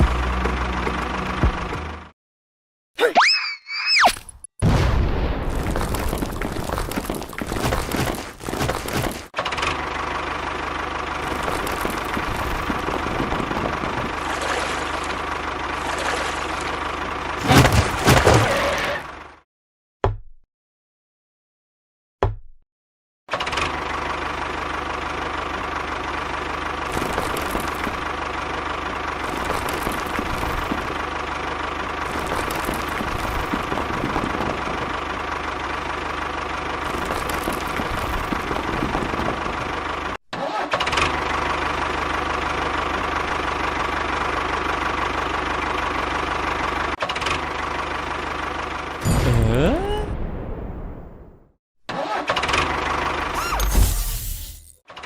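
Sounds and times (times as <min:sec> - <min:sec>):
mini tractor engine droning: 0:00.0 - 0:02.1, 0:06.8 - 0:19.4, 0:23.3 - 0:49.0, 0:52.0 - 0:53.7.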